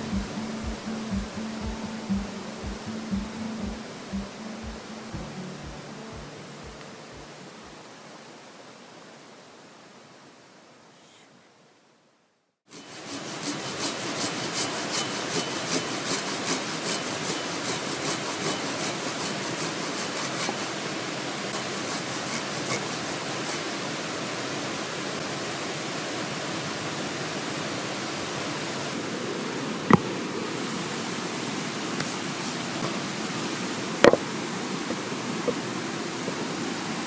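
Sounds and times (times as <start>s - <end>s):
mountain stream rushing: 0.0s - 10.9s, 12.7s - 37.0s
hand saw cutting wood: 12.7s - 20.8s, 21.5s - 23.8s.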